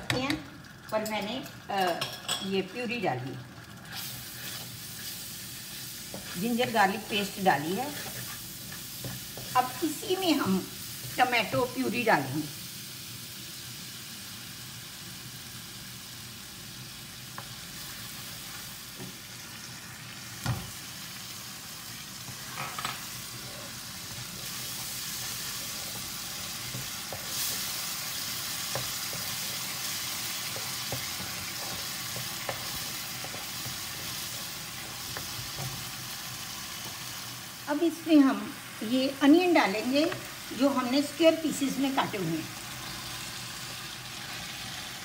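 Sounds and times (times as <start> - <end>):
sauce sizzling in hot oil: 0.0 - 45.0
spatula scraping and tapping pan: 3.9 - 9.8, 22.2 - 36.0.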